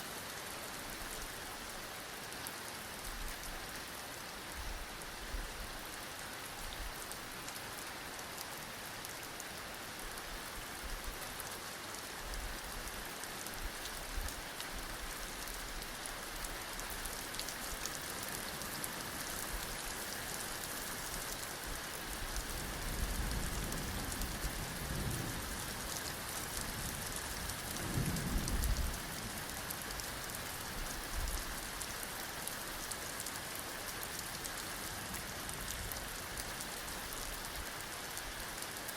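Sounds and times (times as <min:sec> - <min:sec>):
heavy rain falling: 0:00.1 - 0:38.9
low thunder rumbling: 0:27.8 - 0:29.2.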